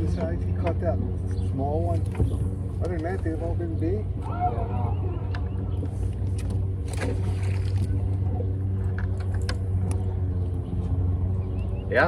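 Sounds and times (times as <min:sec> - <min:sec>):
low mechanical hum: 0:00.0 - 0:12.0
light knocks and clicks: 0:01.9 - 0:03.4.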